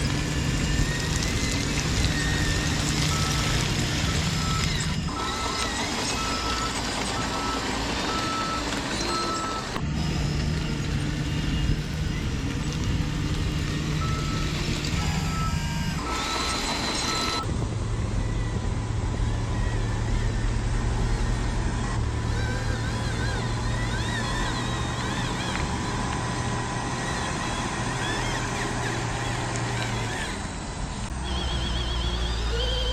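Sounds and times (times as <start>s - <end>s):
reversing beeper beeps: 0.0s - 11.8s, 13.9s - 17.5s, 31.2s - 32.9s
model truck motors humming: 0.0s - 32.9s.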